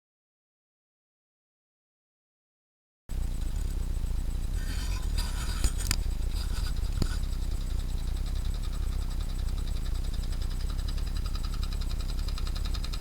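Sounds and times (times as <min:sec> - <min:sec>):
engine low hum: 0:03.1 - 0:13.0.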